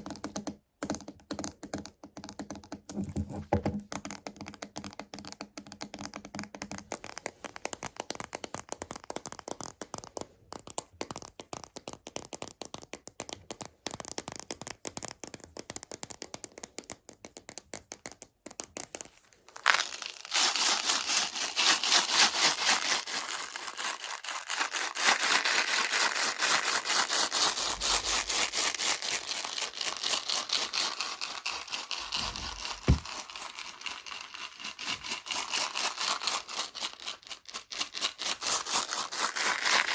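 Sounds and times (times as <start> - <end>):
candies rattling in plastic: 19.5 - 39.9
fingertips tapping plastic container: 32.0 - 33.2.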